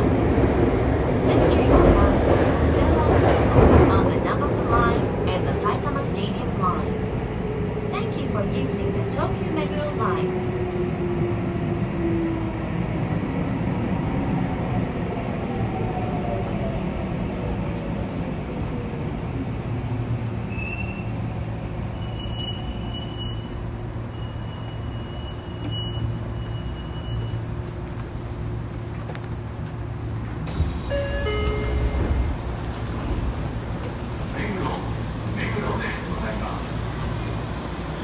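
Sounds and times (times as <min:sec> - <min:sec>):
train low rumble and hum: 0:00.0 - 0:38.0
brief high tones: 0:30.8 - 0:32.2.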